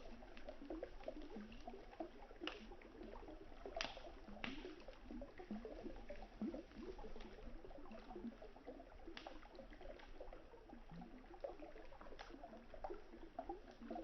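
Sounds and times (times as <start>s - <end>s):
campfire crackling: 2.4s - 2.8s, 3.6s - 5.0s
burning wood popping: 3.8s - 4.8s.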